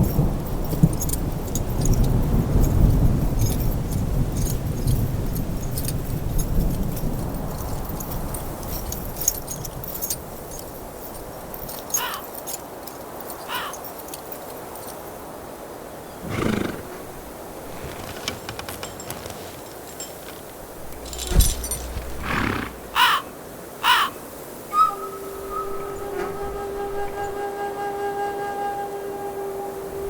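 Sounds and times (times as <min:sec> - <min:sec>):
horse whinnying: 0:16.2 - 0:18.1, 0:20.8 - 0:23.2.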